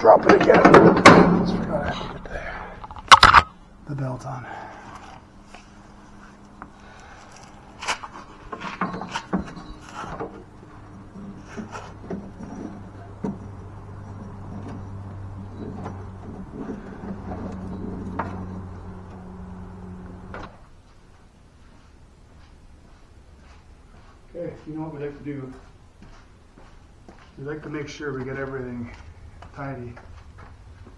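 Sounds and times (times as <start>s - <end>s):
metal knocks and clicks: 0.0s - 3.5s
steady low hum: 0.0s - 20.7s.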